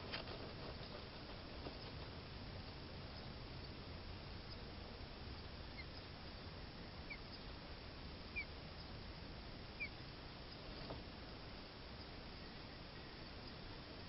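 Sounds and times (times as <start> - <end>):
steady low hiss: 0.0 - 14.0
bird chirping: 3.1 - 3.8, 5.3 - 6.1, 7.0 - 7.5, 8.3 - 9.0, 9.7 - 10.7.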